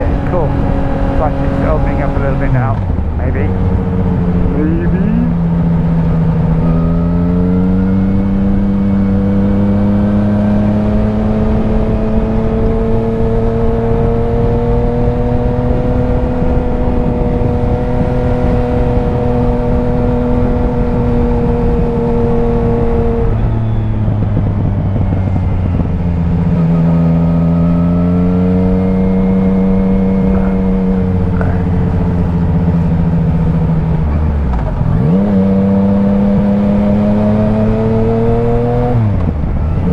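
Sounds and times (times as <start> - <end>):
wind noise: 0.0 - 6.8, 7.4 - 39.9
motorcycle engine running: 0.0 - 39.9.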